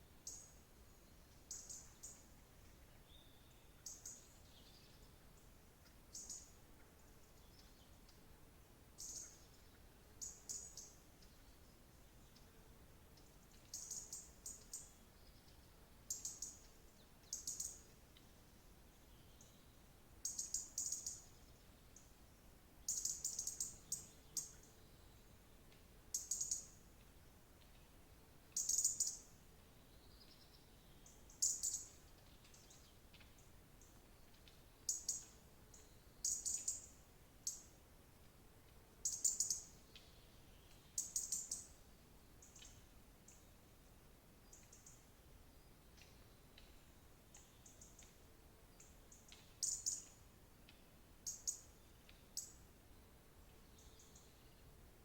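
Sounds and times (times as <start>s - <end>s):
small bird chirping: 0.2s - 0.6s, 1.3s - 2.3s, 3.0s - 5.2s, 5.8s - 6.6s, 9.0s - 11.6s, 13.2s - 17.8s, 19.1s - 22.1s, 22.9s - 25.3s, 26.1s - 26.8s, 28.5s - 29.3s, 30.0s - 37.8s, 39.0s - 41.8s, 42.4s - 43.5s, 44.4s - 45.0s, 45.6s - 52.6s.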